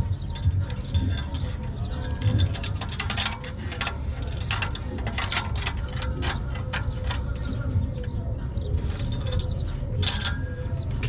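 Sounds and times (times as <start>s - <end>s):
steady low rumble: 0.0s - 11.0s
metal hardware and tools clinking: 0.1s - 11.0s.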